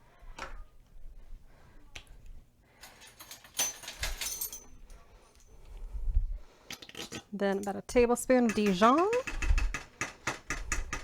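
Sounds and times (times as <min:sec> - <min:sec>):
kitchen containers clicking and rattling: 0:06.7 - 0:11.0.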